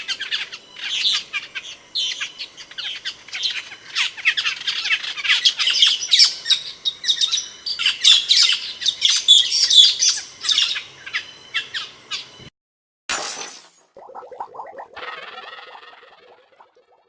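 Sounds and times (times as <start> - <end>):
bird chattering high chirps: 14.0 - 17.0.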